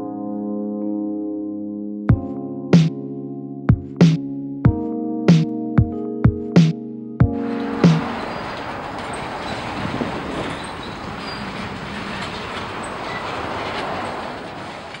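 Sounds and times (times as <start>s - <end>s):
freight cars rumbling on rails: 7.4s - 15.0s
high wheel squeals: 7.4s - 15.0s.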